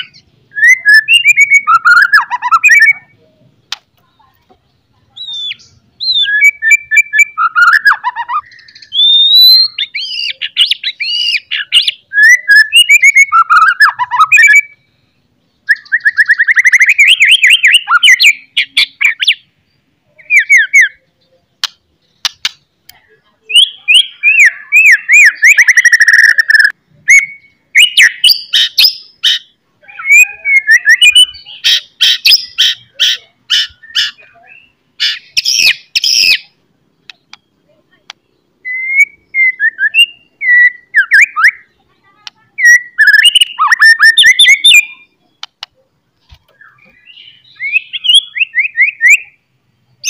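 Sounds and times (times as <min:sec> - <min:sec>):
songbird singing whistles and trills: 0:00.0 - 0:03.4, 0:05.1 - 0:50.0
sharp clicks: 0:03.7 - 0:04.1, 0:21.6 - 0:23.0, 0:37.0 - 0:38.2, 0:45.4 - 0:47.0.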